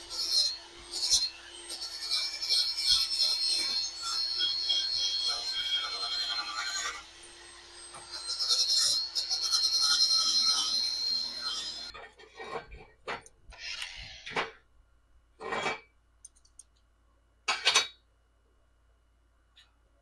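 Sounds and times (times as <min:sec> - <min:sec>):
scraping on metal: 0:11.6 - 0:14.6, 0:15.4 - 0:15.9.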